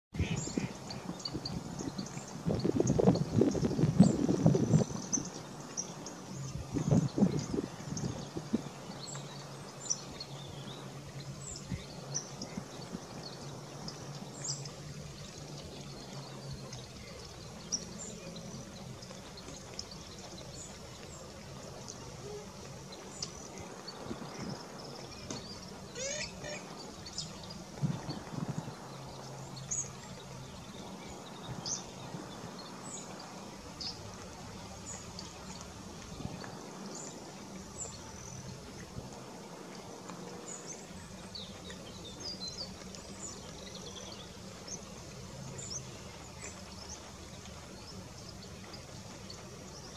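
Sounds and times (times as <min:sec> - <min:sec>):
short high bird calls: 0:25.9 - 0:26.8.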